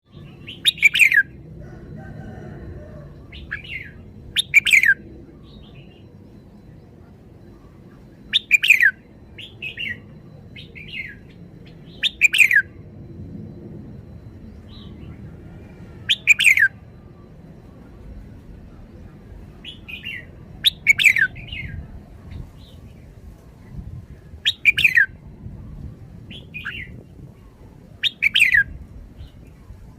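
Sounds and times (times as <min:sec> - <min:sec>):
bulbul singing whistled phrases: 0:00.1 - 0:01.4, 0:03.2 - 0:12.8, 0:16.0 - 0:17.9, 0:18.7 - 0:22.9, 0:24.2 - 0:29.9.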